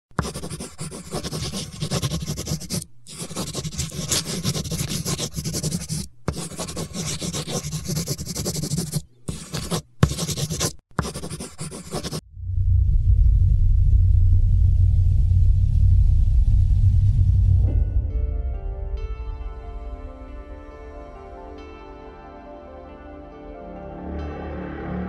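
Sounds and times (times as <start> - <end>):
scratching and rubbing: 0.2 - 12.2.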